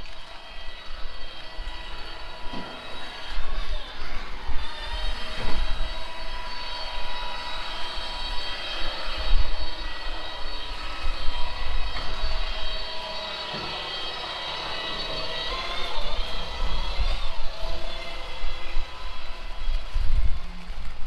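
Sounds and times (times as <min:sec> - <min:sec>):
high whine of held tones: 0:00.0 - 0:21.0
wind buffeting microphone: 0:14.8 - 0:21.0.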